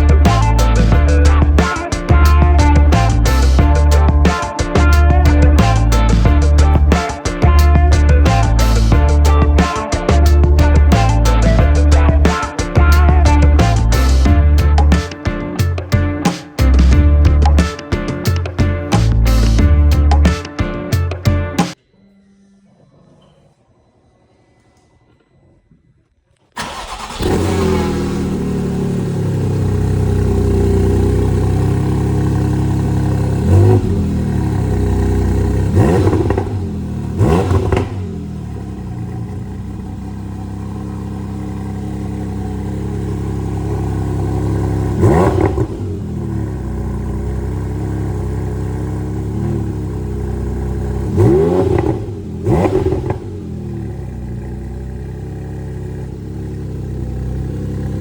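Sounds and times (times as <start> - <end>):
engine revving blips: 26.6 - 55.5
car engine starting and idling: 26.6 - 58.0.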